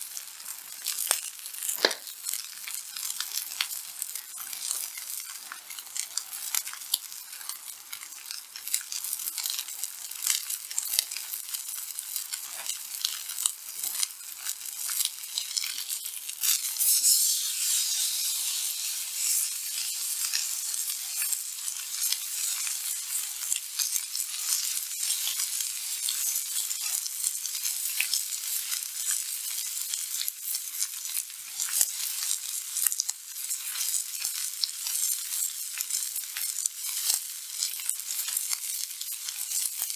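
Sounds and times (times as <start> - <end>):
steak sizzling on a griddle: 0.0 - 39.9.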